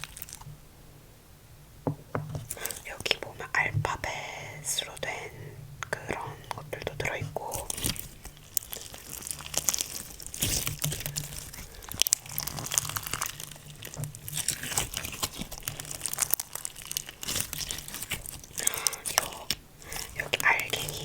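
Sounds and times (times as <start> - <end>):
slime squished by hand: 0.0 - 0.5, 7.5 - 21.0.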